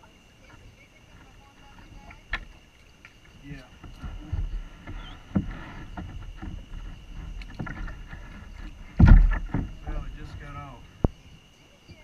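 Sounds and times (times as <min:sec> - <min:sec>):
deep thump: 0:03.8 - 0:11.2
knocks against a kayak hull: 0:03.8 - 0:11.2.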